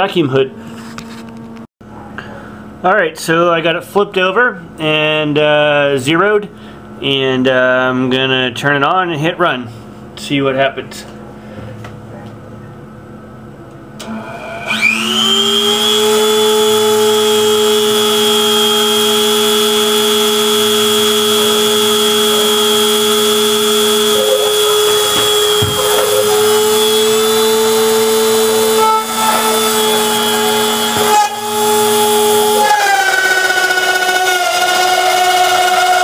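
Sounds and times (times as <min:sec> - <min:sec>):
router spindle whining: 0:14.0 - 0:36.0.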